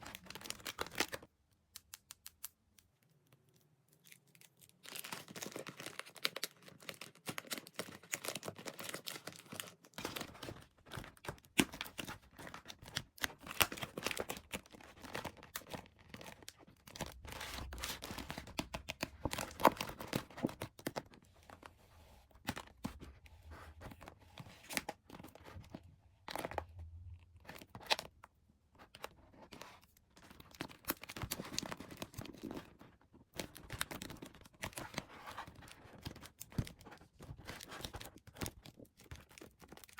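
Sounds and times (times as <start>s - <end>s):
toy packaging tearing and crinkling: 0.0s - 1.3s, 4.0s - 21.2s, 28.9s - 39.9s.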